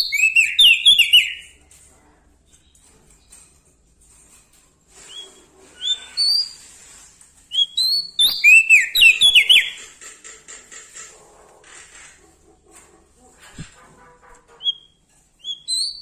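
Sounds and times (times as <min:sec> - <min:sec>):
bird singing whistled notes: 0:00.0 - 0:01.4, 0:07.5 - 0:09.8, 0:14.7 - 0:16.0.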